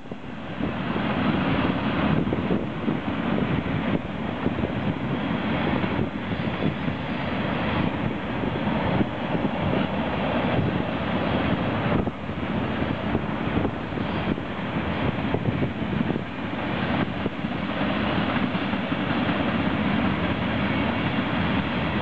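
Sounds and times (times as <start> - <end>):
steel wheels rumbling on rails: 0.0 - 22.0.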